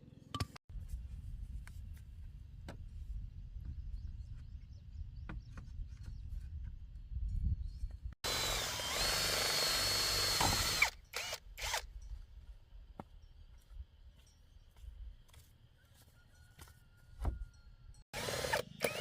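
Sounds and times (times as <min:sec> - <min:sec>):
power drill whining: 0:08.2 - 0:11.9, 0:18.2 - 0:19.0.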